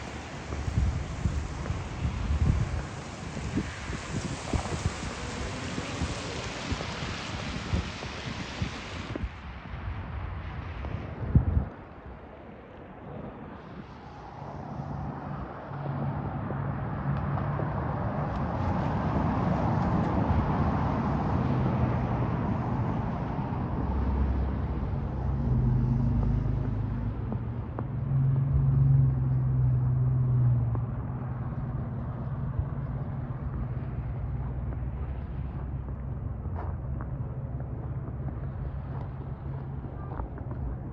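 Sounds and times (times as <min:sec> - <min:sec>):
tyre noise of passing car: 0:00.0 - 0:40.9
low vehicle engine hum: 0:12.6 - 0:40.9.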